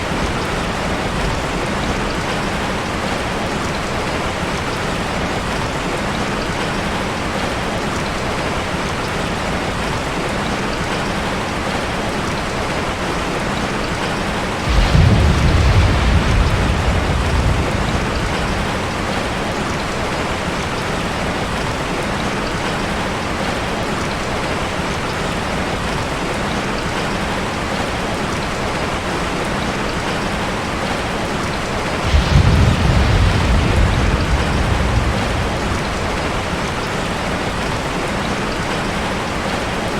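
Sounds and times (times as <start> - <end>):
rain falling: 0.0 - 39.9
low rumbles of thunder: 14.4 - 21.6, 31.9 - 38.8.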